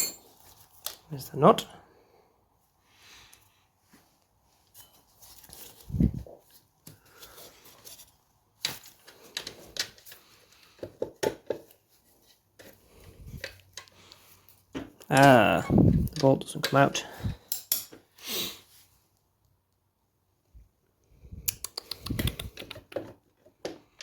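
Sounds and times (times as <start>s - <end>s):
hand tools clinking on metal: 0.0s - 0.4s, 15.1s - 18.0s.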